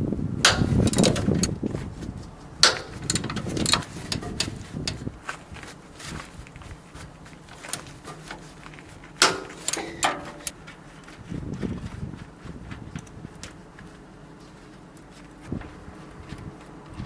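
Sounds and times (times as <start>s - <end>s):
loud ringing metal clank: 0.5s - 1.4s, 2.6s - 4.6s, 9.2s - 10.5s
hand tools clinking on metal: 0.5s - 1.5s, 2.6s - 5.1s, 7.6s - 10.6s.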